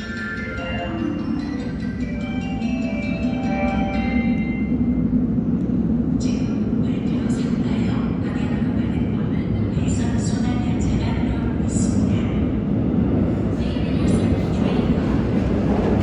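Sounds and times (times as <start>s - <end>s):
platform arrival chime: 0.0s - 4.8s
train wheels rumbling on rails: 4.4s - 16.0s.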